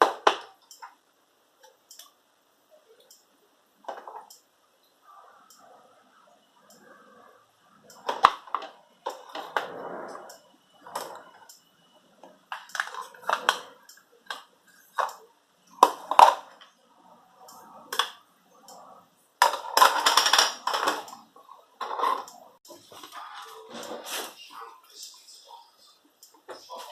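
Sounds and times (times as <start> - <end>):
kitchen items clinking and knocking: 19.4 - 21.2.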